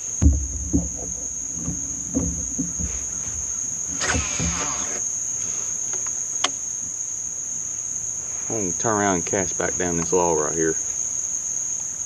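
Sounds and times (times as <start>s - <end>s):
soft low knocks: 0.0s - 5.0s
insects singing: 0.0s - 12.0s.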